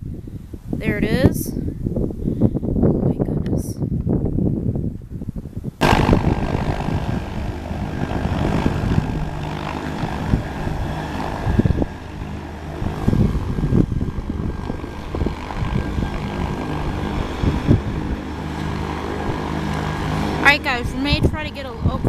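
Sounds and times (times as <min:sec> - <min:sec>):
light airplane engine droning: 0:05.4 - 0:22.0.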